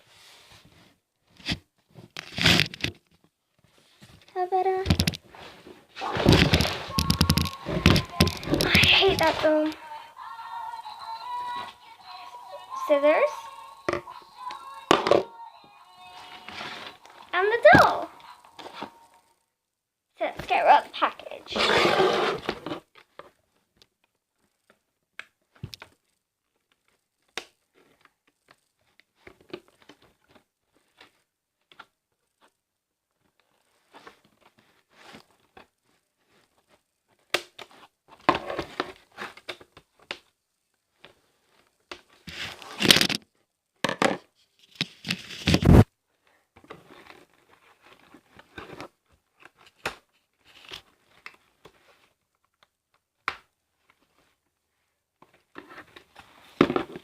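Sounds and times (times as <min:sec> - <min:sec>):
packaging being cut: 0:06.0 - 0:09.6.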